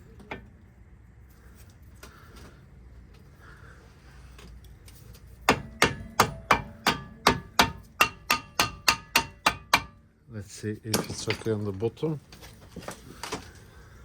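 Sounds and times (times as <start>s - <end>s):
hammer tapping on metal: 5.5s - 10.0s.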